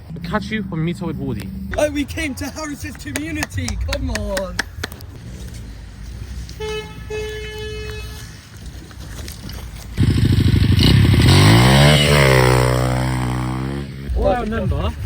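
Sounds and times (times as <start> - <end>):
pit bike engine revving: 10.0 - 14.4.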